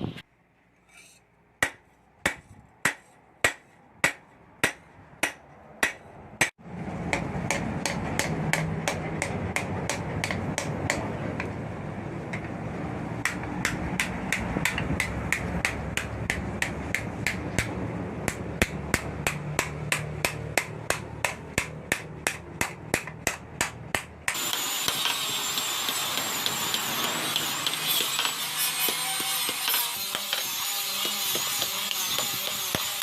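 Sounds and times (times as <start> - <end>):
hammer striking steel on anvil: 0.9 - 11.1, 13.2 - 17.7, 18.3 - 33.0
whirring power tool whine: 24.3 - 32.5.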